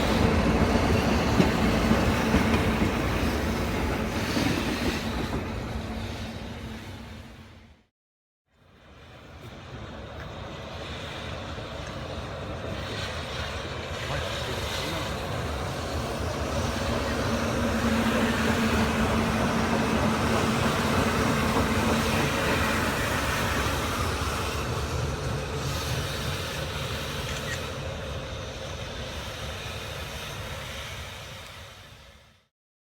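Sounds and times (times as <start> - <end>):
electric locomotive running: 0.0 - 7.6, 8.7 - 32.4.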